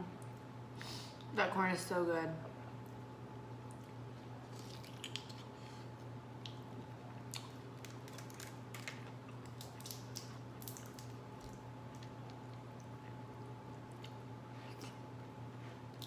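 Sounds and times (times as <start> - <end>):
steady low hum: 0.0 - 16.0
chewing mouth noises: 3.7 - 5.8, 6.4 - 15.0.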